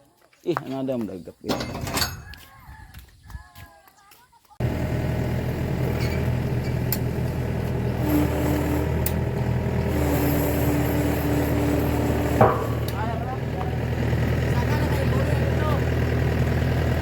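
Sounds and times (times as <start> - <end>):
higher steady hum: 4.6 - 17.0
truck engine low drone: 4.6 - 17.0.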